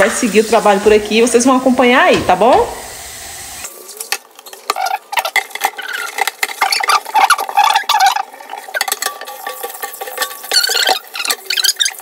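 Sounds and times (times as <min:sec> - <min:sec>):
scrubbing with a sponge: 0:04.7 - 0:08.3.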